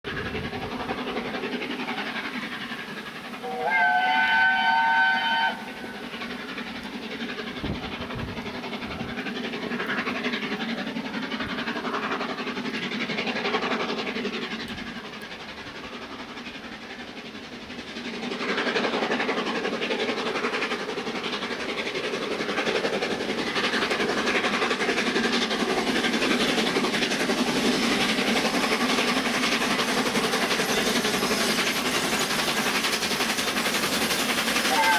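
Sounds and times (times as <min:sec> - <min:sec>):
steam train running: 0:00.1 - 0:34.9
steam locomotive whistle: 0:03.4 - 0:06.0, 0:34.6 - 0:34.9.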